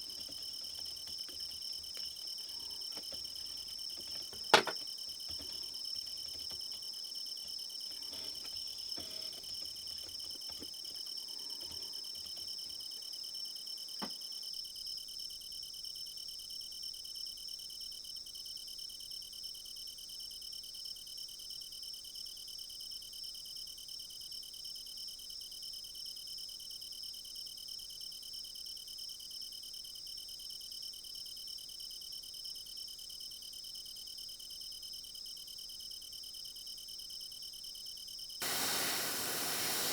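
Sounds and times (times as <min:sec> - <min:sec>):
crickets chirping: 0:00.0 - 0:16.4, 0:31.1 - 0:39.9.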